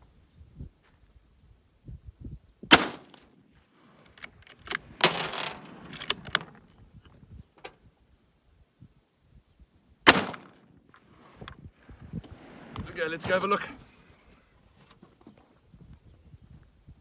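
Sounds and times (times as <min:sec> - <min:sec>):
rifle shot: 0:02.7 - 0:03.3, 0:10.0 - 0:10.6
rifle bolt metallic clicks: 0:04.1 - 0:06.6
sliding rattle of ejected case: 0:04.1 - 0:06.8.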